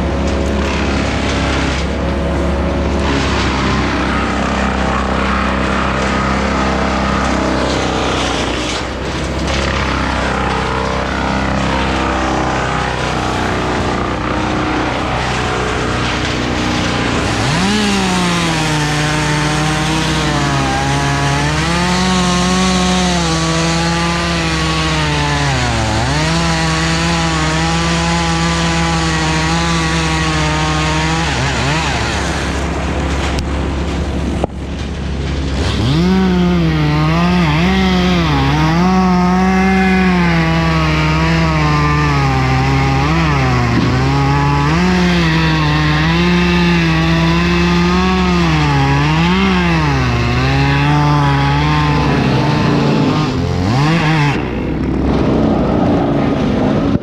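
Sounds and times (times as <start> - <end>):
chainsaw cutting wood: 0.0 - 57.0
low engine drone: 32.2 - 36.8, 51.8 - 57.0.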